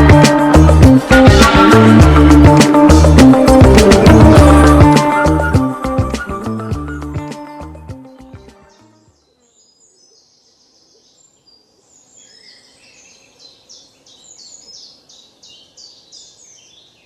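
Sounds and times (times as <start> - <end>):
music track: 0.0 - 8.6
songbirds chirping and trilling: 8.1 - 17.0.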